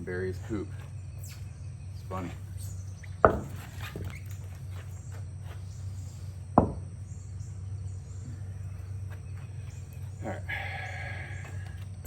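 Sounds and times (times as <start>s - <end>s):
sharp thumps: 0.0s - 5.1s, 6.5s - 7.2s
steady low hum: 0.0s - 12.0s.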